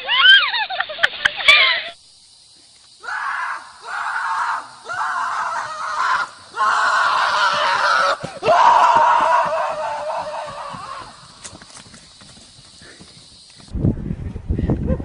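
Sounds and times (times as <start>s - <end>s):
person screaming: 3.0s - 11.2s.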